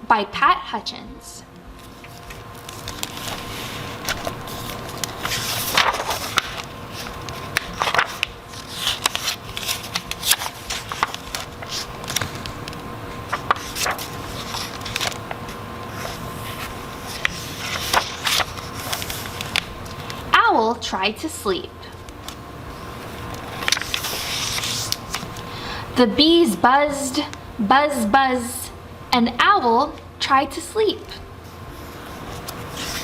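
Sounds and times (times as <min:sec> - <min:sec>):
faint steady hum: 0:00.0 - 0:33.0
rustling and scraping: 0:01.8 - 0:12.5.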